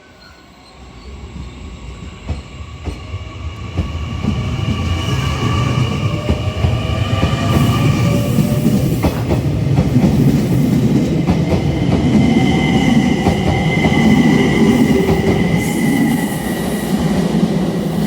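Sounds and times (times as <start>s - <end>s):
train rumbling past: 0.0s - 18.0s.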